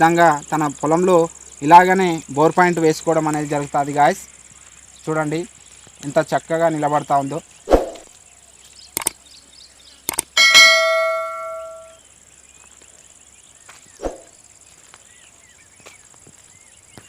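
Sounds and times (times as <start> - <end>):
sharp clicks: 8.9 - 9.2, 10.0 - 10.4
metallic bell ring: 10.4 - 12.0.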